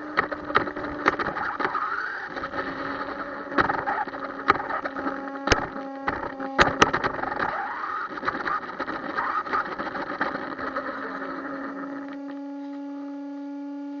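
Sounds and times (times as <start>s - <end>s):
crackly clicking noise: 0.0s - 12.8s
electric toy motor whirring: 0.0s - 14.0s
steady even-pitched hum: 0.0s - 14.0s.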